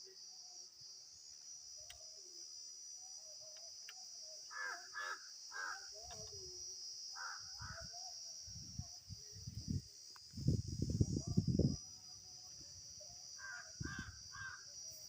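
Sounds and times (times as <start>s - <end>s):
crows cawing: 4.5s - 5.9s, 7.2s - 7.9s, 13.4s - 14.6s.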